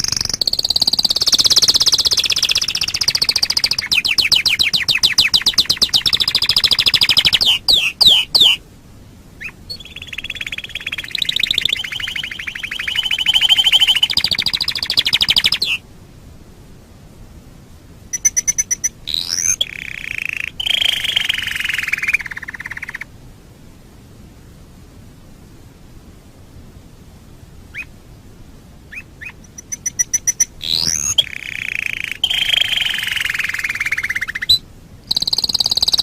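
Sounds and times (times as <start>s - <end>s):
canary singing trills: 0.0s - 8.6s, 9.4s - 15.8s, 18.1s - 23.1s, 27.7s - 27.9s, 28.9s - 36.0s
faint hiss: 0.0s - 36.0s.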